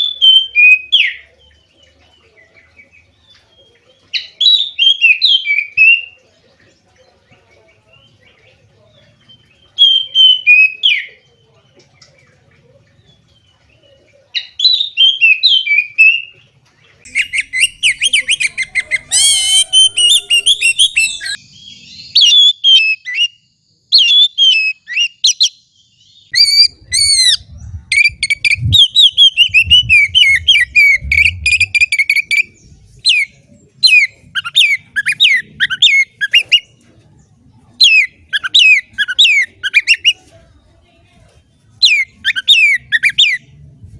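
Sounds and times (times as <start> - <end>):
bird singing whistles and trills: 0.0 - 1.3, 3.4 - 6.2, 9.3 - 11.2, 14.4 - 16.3, 17.0 - 36.7, 37.8 - 40.2, 41.8 - 43.5.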